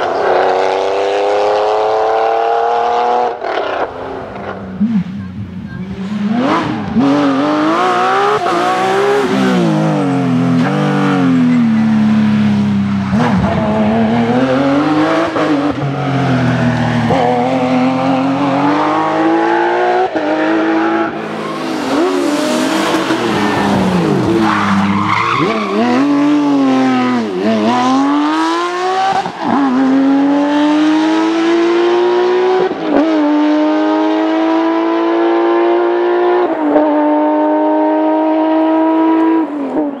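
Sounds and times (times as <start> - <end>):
rally car engine revving: 0.0 - 40.0
tyre squeal: 21.2 - 26.2.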